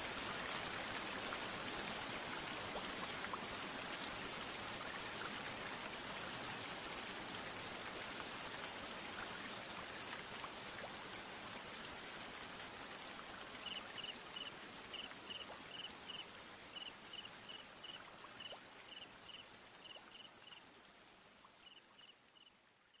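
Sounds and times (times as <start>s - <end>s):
falling water hiss: 0.0s - 20.6s
cricket chirping: 13.6s - 16.2s, 16.8s - 20.6s.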